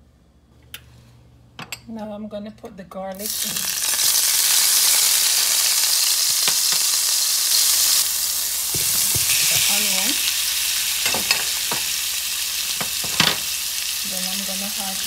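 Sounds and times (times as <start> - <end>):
garlic sizzling in hot oil: 3.2 - 15.0.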